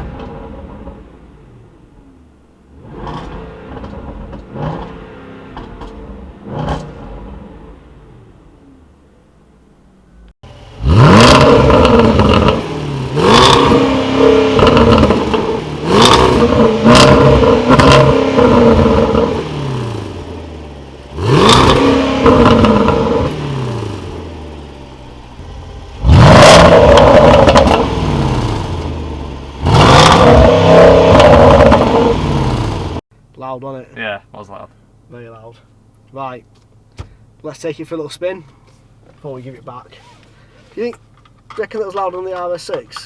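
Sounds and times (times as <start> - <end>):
exhaust cracks: 0.0 - 9.5, 10.2 - 33.4, 35.6 - 43.0
car engine revving: 0.0 - 33.0.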